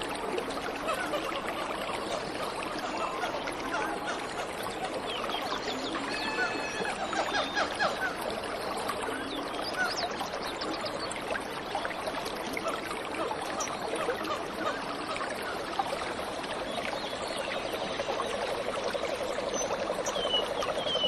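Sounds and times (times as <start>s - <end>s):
waterfall running: 0.0s - 21.0s
birds chirping: 19.3s - 21.0s.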